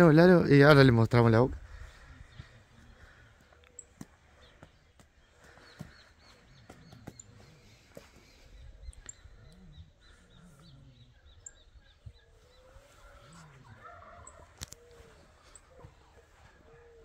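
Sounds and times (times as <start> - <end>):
bird chirping: 2.0 - 17.0.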